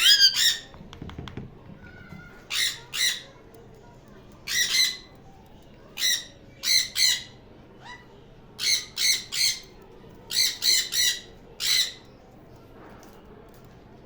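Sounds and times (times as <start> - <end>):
parrot squawking: 0.0 - 0.7.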